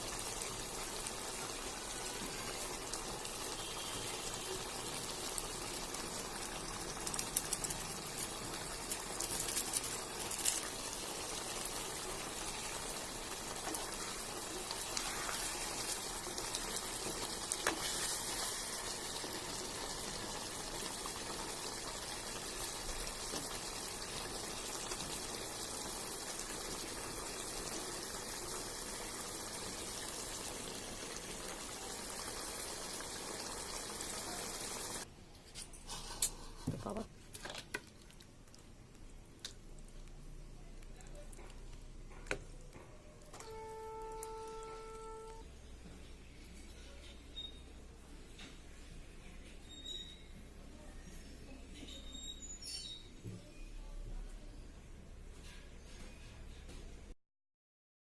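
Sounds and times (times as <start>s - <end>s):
gravy bubbling in a pan: 0.0s - 35.1s.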